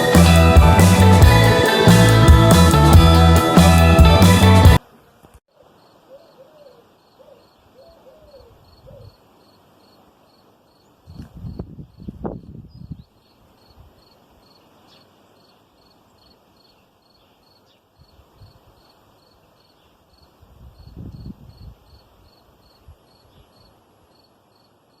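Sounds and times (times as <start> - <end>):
cricket chirping: 8.6 - 10.9, 13.2 - 14.7, 15.4 - 25.0.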